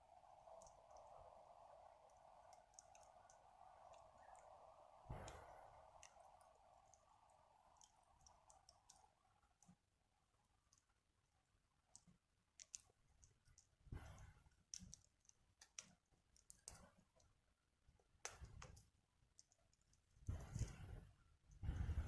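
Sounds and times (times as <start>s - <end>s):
soft low rushes of noise: 0.0s - 9.0s, 21.6s - 22.0s
wood fire crackling: 0.0s - 9.8s, 12.6s - 17.3s, 20.1s - 22.0s.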